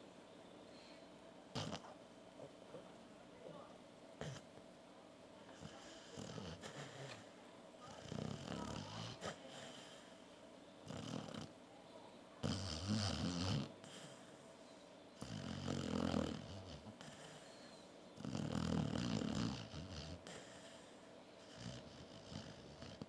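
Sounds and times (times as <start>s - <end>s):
dog snoring: 1.5s - 1.9s, 4.2s - 4.5s, 5.5s - 10.2s, 10.8s - 11.6s, 12.4s - 14.4s, 15.2s - 23.0s.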